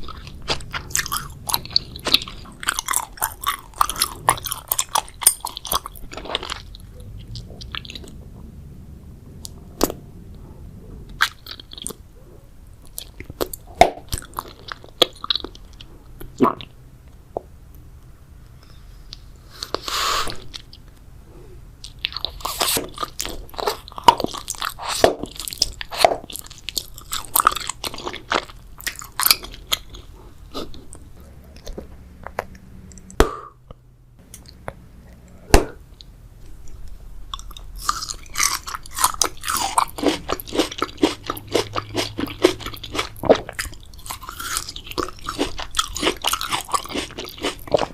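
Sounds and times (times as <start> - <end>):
wet chewing mouth clicks: 0.0 - 8.2.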